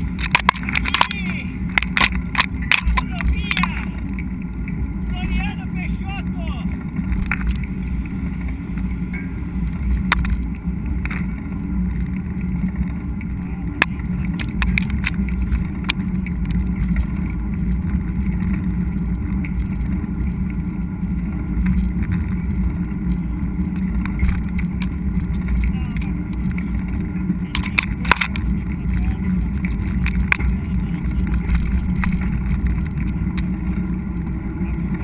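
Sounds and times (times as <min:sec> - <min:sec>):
bike clicking and rattling: 0:00.0 - 0:05.1, 0:06.7 - 0:35.0
wind and trail rumble: 0:00.0 - 0:35.0.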